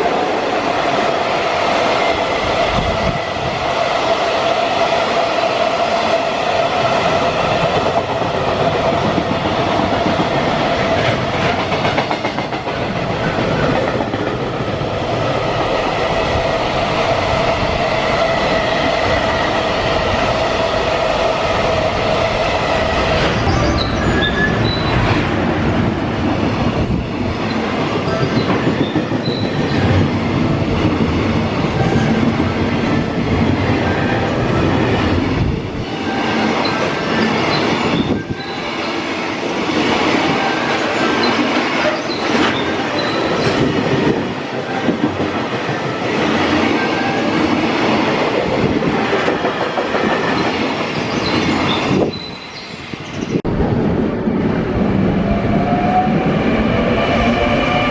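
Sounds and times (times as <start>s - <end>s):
wheels squealing: 23.3s - 25.2s.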